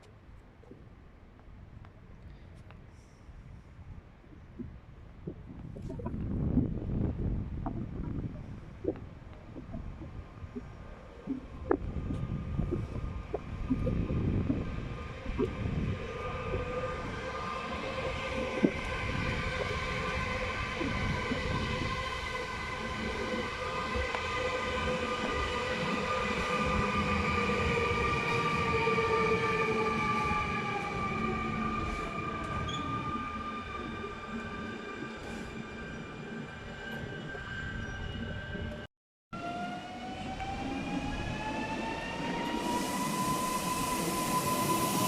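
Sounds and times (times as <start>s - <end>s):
train wheels and brakes squealing: 16.1s - 38.8s, 39.4s - 45.0s.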